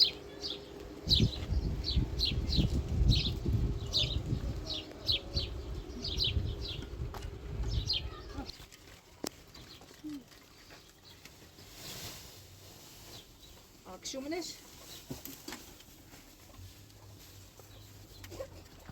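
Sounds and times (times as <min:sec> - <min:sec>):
small birds chirping: 0:00.0 - 0:08.6, 0:09.6 - 0:11.9, 0:12.8 - 0:18.8
low rumble: 0:01.0 - 0:08.5.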